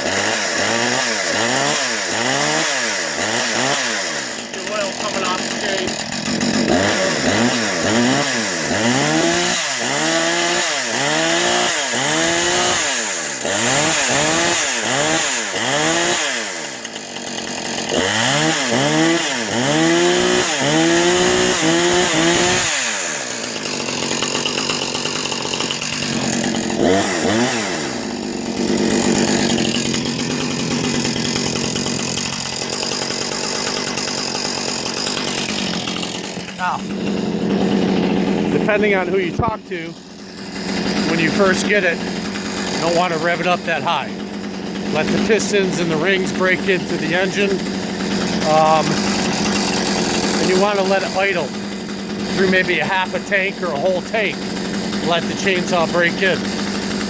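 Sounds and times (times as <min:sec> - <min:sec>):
chainsaw idling: 0:00.0 - 0:57.0
chainsaw revving: 0:00.0 - 0:57.0.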